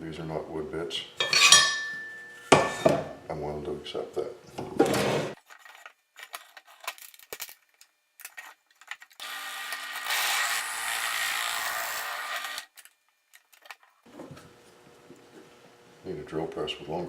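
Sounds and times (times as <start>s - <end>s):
drill press boring into wood: 9.2s - 12.7s.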